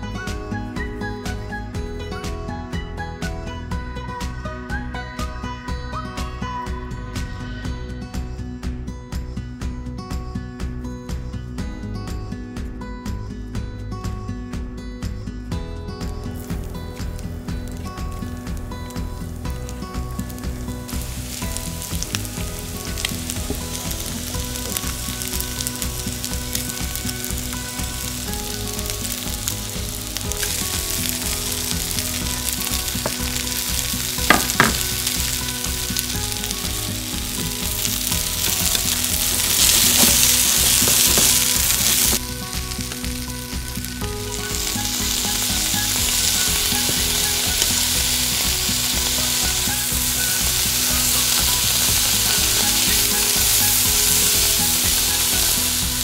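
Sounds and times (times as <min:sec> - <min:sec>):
food sizzling in a frying pan: 0:16.3 - 0:56.0.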